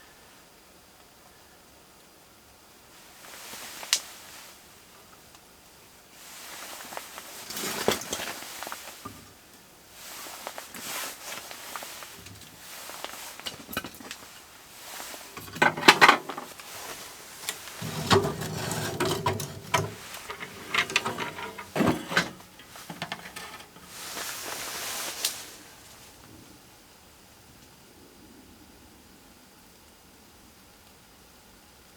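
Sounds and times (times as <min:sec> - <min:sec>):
scraping and shuffling: 0:10.0 - 0:26.0
objects knocking and clattering: 0:15.3 - 0:24.4.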